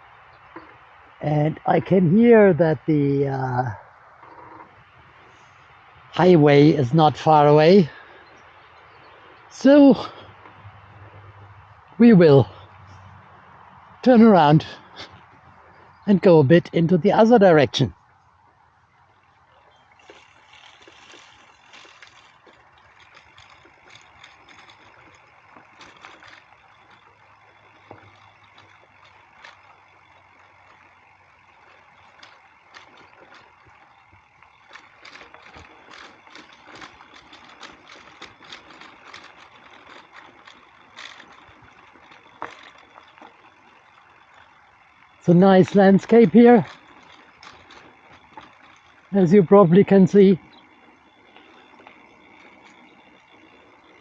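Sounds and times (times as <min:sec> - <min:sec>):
distant highway traffic hiss: 0:00.0 - 0:54.0
light clicks and ticks: 0:19.9 - 0:54.0.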